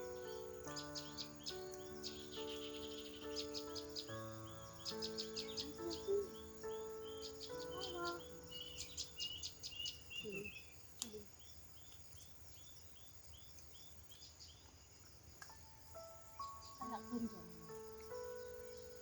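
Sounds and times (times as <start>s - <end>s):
background music: 0.0s - 9.4s, 15.7s - 19.0s
bird chirping: 0.0s - 19.0s
high insect drone: 0.0s - 19.0s.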